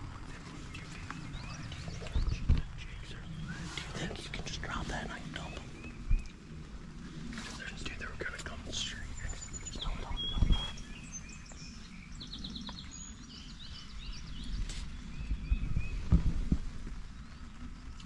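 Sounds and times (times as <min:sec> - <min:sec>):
rain pattering: 0:00.0 - 0:10.2, 0:16.4 - 0:18.0
small birds chirping: 0:00.0 - 0:18.0.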